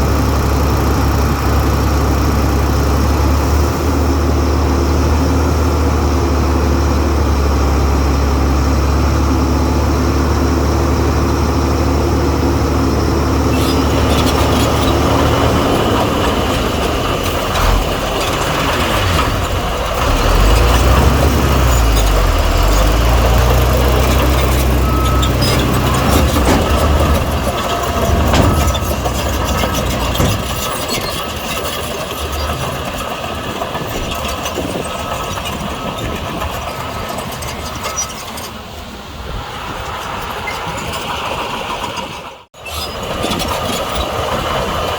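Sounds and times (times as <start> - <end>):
heavy diesel engines running: 0.0 - 44.9
clanks and knocks: 13.5 - 38.5.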